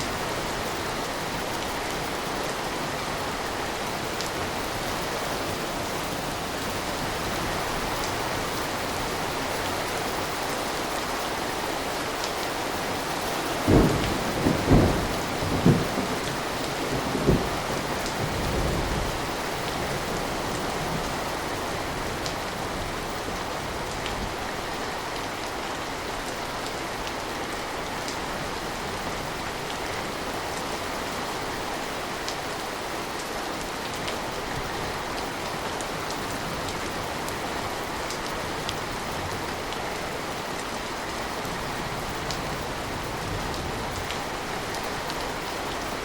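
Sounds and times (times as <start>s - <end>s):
steady rain hissing: 0.0s - 46.0s
low thunder rumble: 13.6s - 22.2s.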